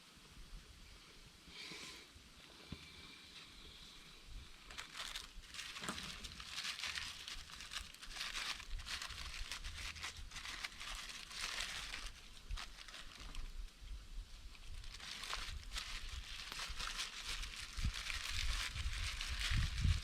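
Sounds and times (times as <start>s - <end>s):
rustling and crinkling: 4.4s - 20.0s.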